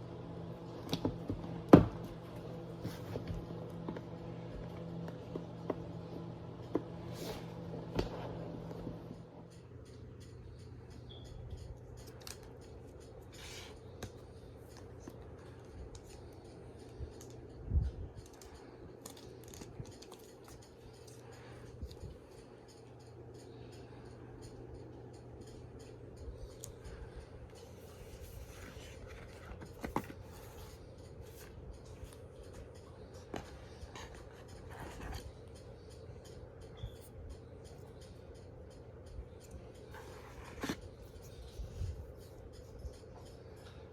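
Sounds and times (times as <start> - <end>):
faint steady hum: 0.0 - 43.9
packaging clicks and scrapes: 27.9 - 31.6.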